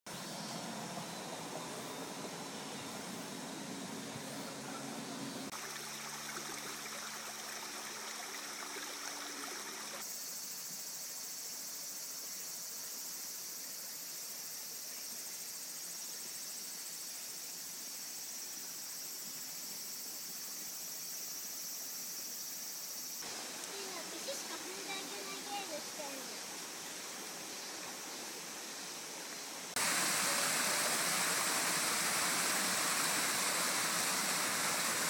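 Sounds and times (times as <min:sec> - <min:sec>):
high even hiss: 0:07.5 - 0:35.0.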